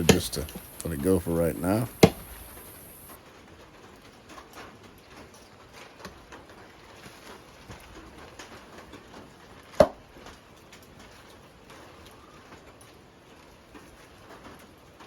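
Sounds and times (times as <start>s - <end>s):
faint ticks and taps: 0.0s - 3.2s.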